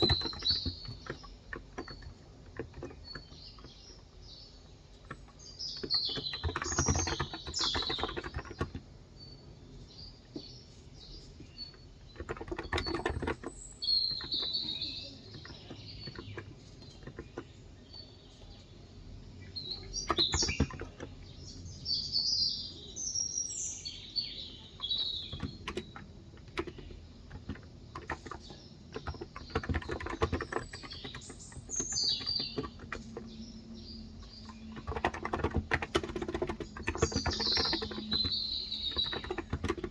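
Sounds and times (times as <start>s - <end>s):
typing on a keyboard: 0.0s - 4.2s, 4.9s - 9.0s, 11.4s - 17.8s, 19.7s - 21.3s, 24.8s - 39.9s
birds chirping: 0.0s - 39.9s.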